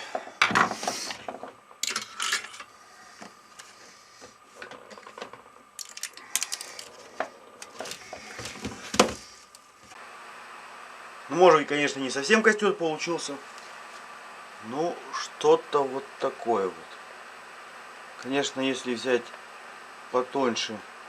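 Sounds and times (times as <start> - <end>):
faint steady hum: 0.0 - 21.0
rustling of craft parts: 0.4 - 9.5.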